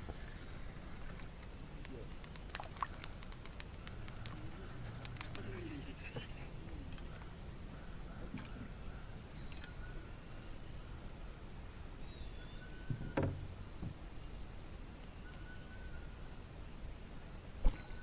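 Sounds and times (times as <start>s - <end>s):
insect drone: 0.0s - 18.0s
faint bird calls: 1.9s - 13.9s.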